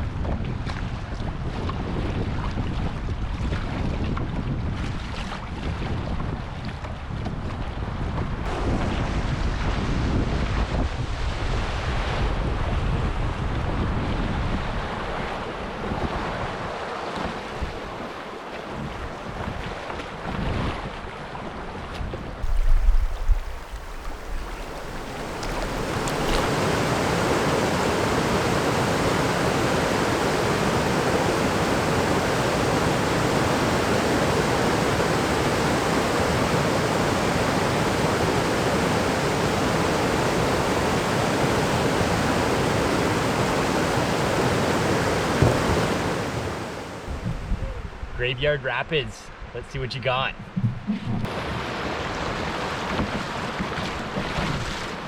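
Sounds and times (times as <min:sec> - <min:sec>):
wind buffeting microphone: 0:00.0 - 0:16.4, 0:22.4 - 0:48.2
low thump: 0:22.4 - 0:26.5
river water flowing: 0:22.4 - 0:47.2, 0:51.3 - 0:53.6
whitewater rapids rushing: 0:22.4 - 0:47.2.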